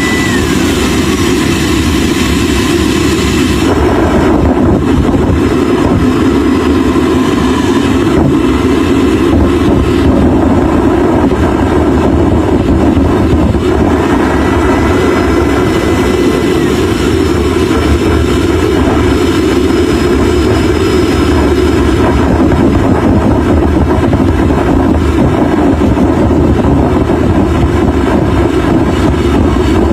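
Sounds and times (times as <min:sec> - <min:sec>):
jet engine running loudly: 0:00.0 - 0:29.9
thin whine: 0:00.0 - 0:29.9.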